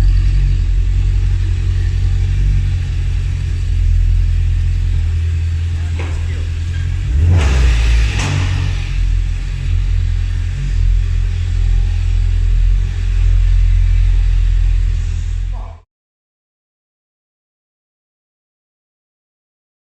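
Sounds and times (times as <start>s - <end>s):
car engine exhaust rumble: 0.0s - 15.8s.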